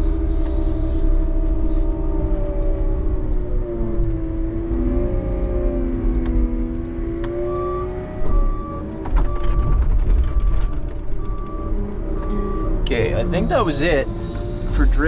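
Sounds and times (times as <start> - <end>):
truck engine revving: 0.0 - 15.0
backup alarm beeping: 7.6 - 14.8.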